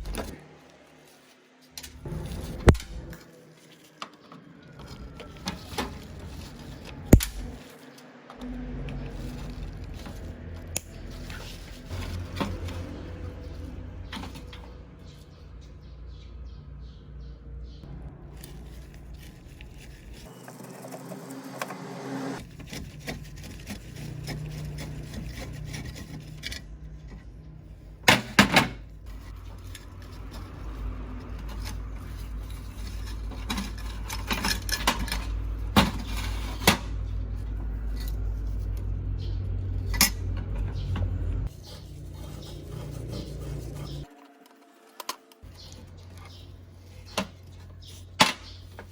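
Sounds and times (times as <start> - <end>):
metal rubbing and scraping: 0.0 - 15.7, 18.2 - 48.9
low steady hum: 22.2 - 44.1
metal lamp parts clinking: 28.1 - 38.9.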